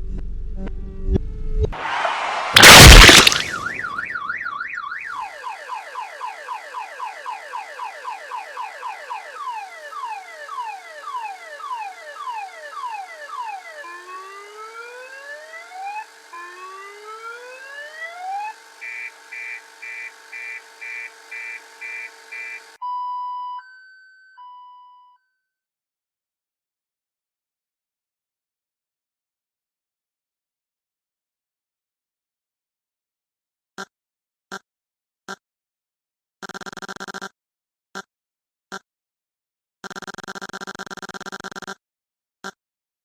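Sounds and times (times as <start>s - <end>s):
loud noisy burst: 1.8s - 4.0s
car alarm cycling tones: 3.5s - 14.5s, 16.8s - 22.8s.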